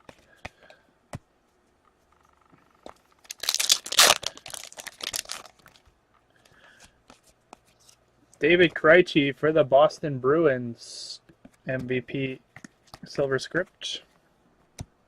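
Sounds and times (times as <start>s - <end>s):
wrapper tearing and crinkling: 3.2s - 5.8s.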